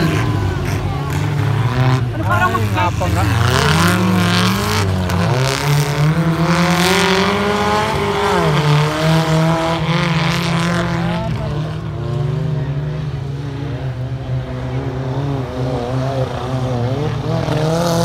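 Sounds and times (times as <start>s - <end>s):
off-road engine revving: 0.0s - 18.0s.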